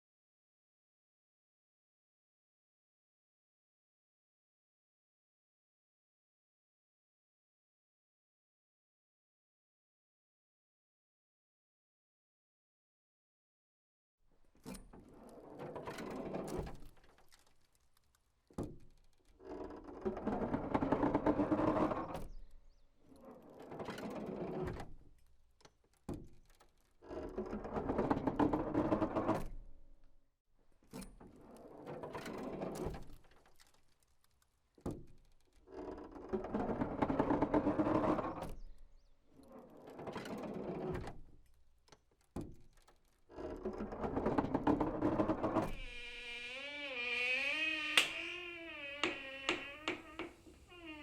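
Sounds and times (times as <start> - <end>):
long drawn-out creaks: 14.6 - 25.8, 26.4 - 29.4, 31.2 - 42.0, 42.7 - 51.0.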